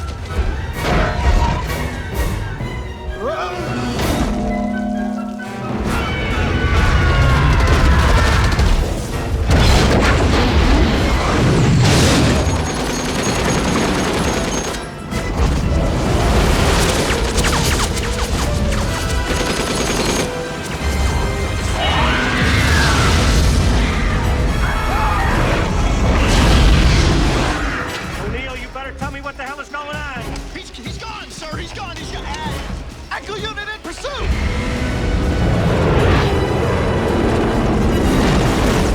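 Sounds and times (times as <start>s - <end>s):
dramatic music: 0.0s - 38.9s
heavy booms and crashes: 5.7s - 29.4s.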